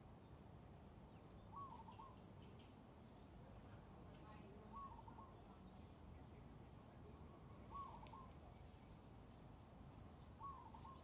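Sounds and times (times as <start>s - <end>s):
bird chirping call: 1.1s - 3.3s, 4.5s - 6.0s, 7.6s - 8.4s, 10.2s - 11.0s.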